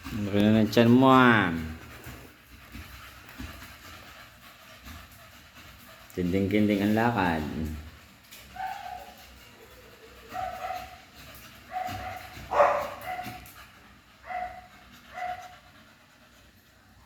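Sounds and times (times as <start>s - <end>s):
dog barking: 8.6s - 9.1s, 10.3s - 11.0s, 11.7s - 13.4s, 14.2s - 15.5s.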